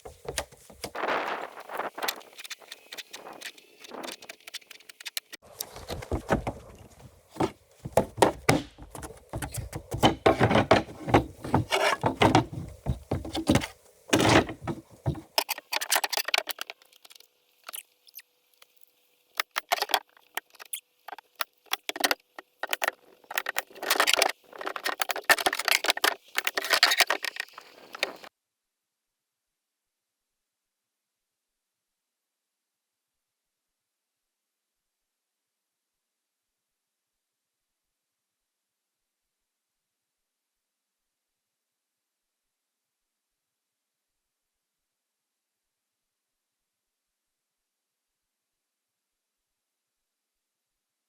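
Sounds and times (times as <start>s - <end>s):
construction knocks and thuds: 5.8s - 15.3s.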